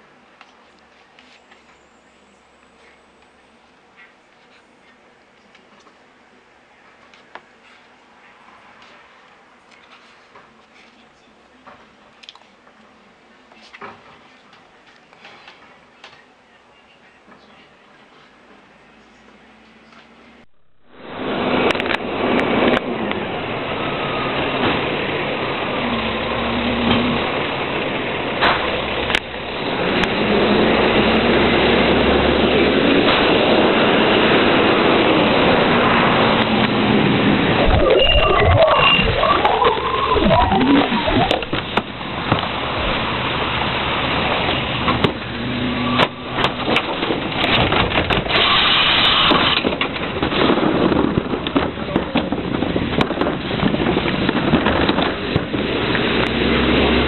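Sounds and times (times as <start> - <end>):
garbage truck running: 20.2 - 57.0
hissing rush: 32.7 - 44.9.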